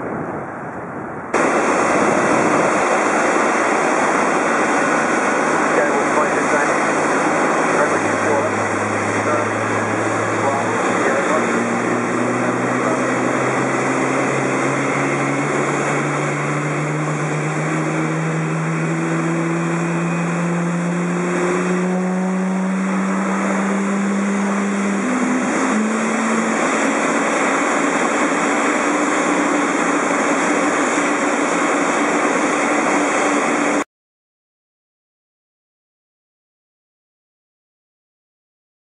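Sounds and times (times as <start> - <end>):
jet engines at high power: 0.0 - 33.8.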